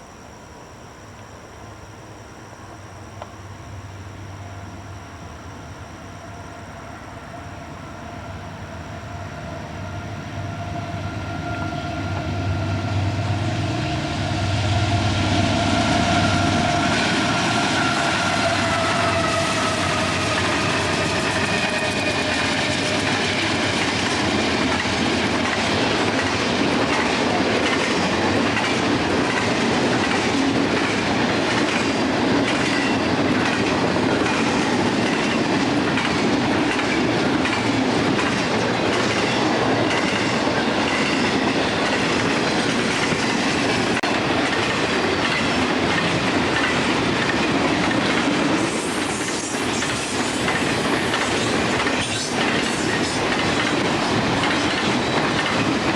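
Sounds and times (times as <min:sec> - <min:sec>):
train passing: 0:00.0 - 0:55.9
wheels clicking over rail joints: 0:16.8 - 0:55.9.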